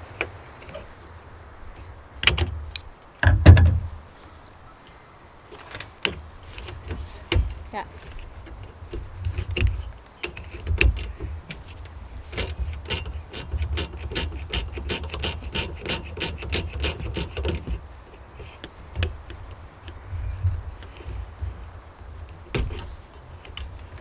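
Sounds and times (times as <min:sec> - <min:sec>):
ratchet wrench clicking: 0:12.3 - 0:17.8.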